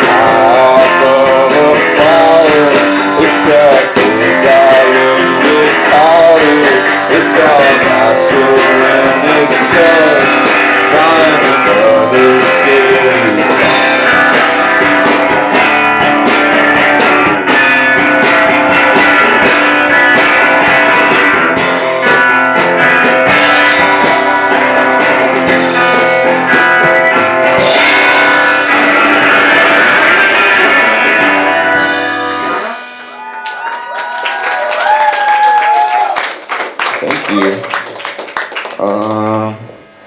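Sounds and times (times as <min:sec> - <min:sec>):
live rock band playing: 0:00.0 - 0:36.1
audience clapping and cheering: 0:32.6 - 0:39.6.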